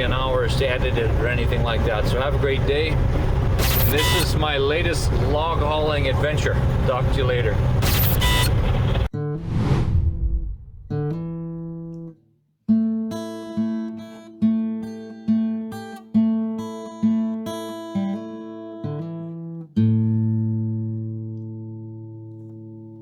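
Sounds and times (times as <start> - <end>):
acoustic guitar plucked notes: 10.9 - 23.0.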